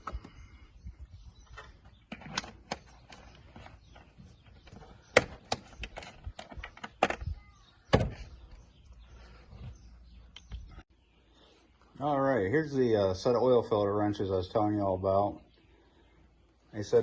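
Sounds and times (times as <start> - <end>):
clicks and knocks of handling: 1.5 - 7.4.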